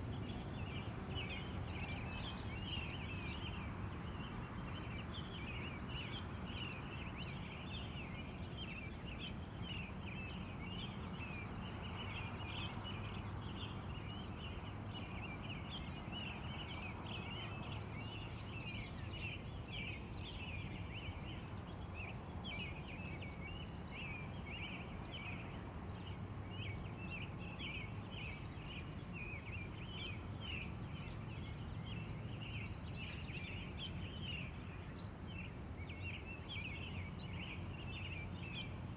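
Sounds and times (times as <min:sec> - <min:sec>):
wild birds chirping: 0:00.0 - 0:38.9
high insect trill: 0:29.4 - 0:38.9.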